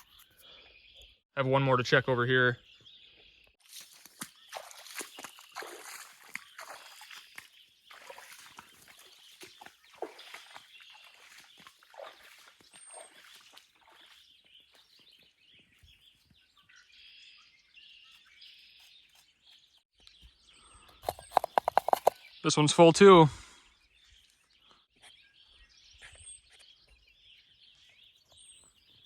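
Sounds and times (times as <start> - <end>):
small birds chirping: 0.0 - 29.0
footsteps in wet snow: 3.6 - 17.0, 17.8 - 19.8.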